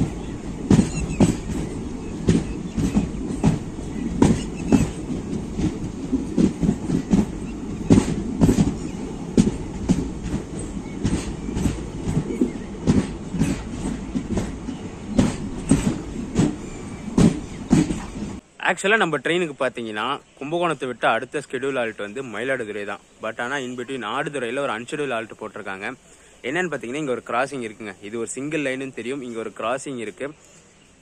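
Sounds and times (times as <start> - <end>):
wheels clacking over rail joints: 0.0 - 18.4
train rumble: 0.0 - 18.6.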